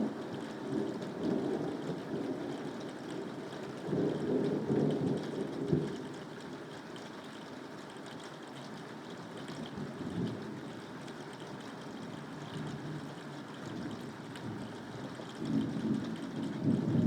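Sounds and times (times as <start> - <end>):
steady rainfall: 0.0 - 17.0.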